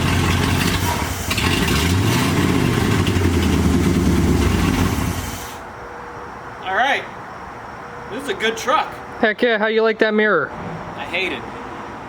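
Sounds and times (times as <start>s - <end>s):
pickup truck engine running: 0.0s - 5.7s.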